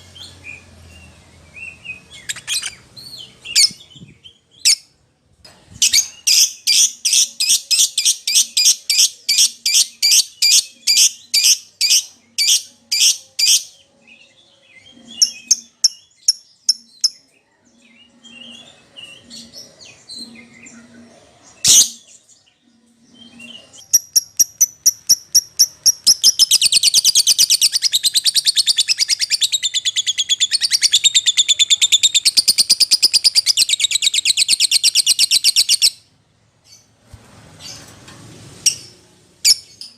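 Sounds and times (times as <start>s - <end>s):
lovebird chirping: 0.0s - 4.9s, 14.8s - 17.3s, 23.1s - 36.9s.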